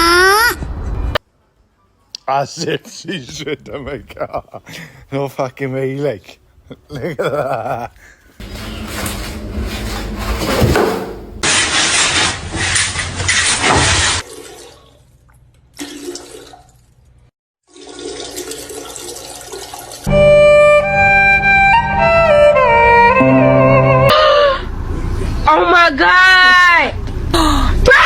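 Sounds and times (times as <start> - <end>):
melody of held notes: 20.1 - 24.1.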